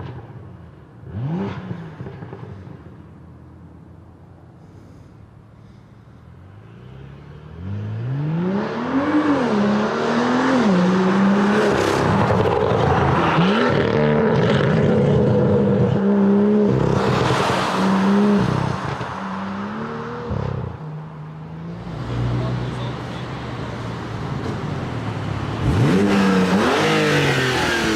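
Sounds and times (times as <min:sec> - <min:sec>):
sports car engine revving: 0:25.5 - 0:27.9.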